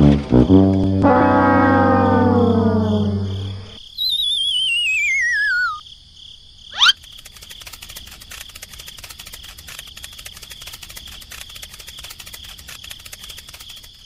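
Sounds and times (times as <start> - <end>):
steady high tone: 1.0 - 3.8
falling wavering whistle: 1.2 - 5.8, 6.8 - 7.0
insect-like chirring: 1.5 - 14.0
quick rising zip: 6.8 - 7.0.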